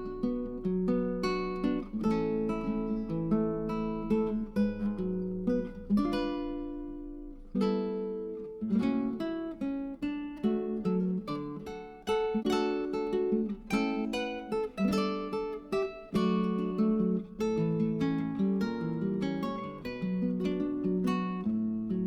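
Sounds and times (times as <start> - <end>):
acoustic guitar chords: 0.0 - 22.0.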